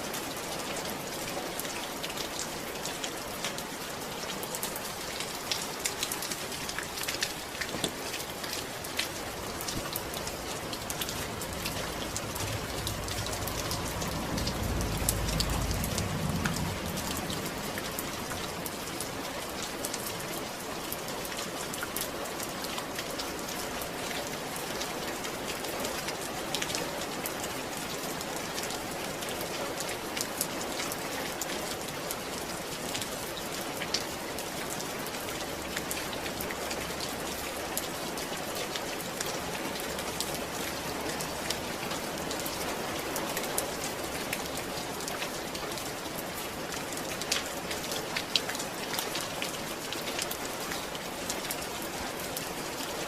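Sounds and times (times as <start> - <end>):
steady rain falling: 0.0 - 53.0
low rumble: 9.4 - 18.9.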